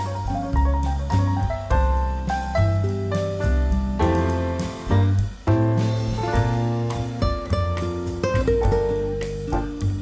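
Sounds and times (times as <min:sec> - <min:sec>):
bass line: 0:00.0 - 0:10.0
plucked guitar notes: 0:06.0 - 0:10.0.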